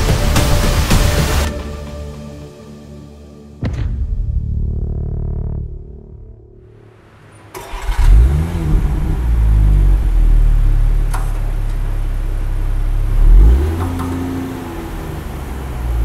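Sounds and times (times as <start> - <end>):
car engine starting and revving: 4.5 - 16.0.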